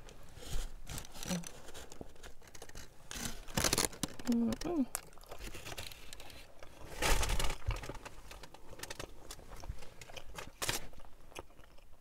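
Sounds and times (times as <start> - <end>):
rustling: 0.0 - 11.0
wet chewing: 4.1 - 7.0, 8.9 - 12.0.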